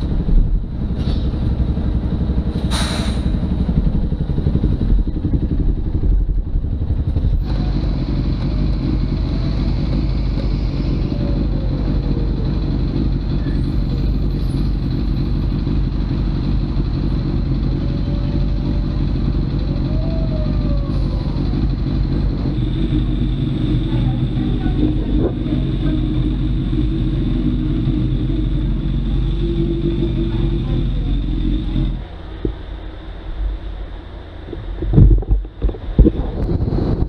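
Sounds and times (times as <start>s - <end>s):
motorcycle engine: 0.0s - 37.0s
wind noise: 34.4s - 37.0s.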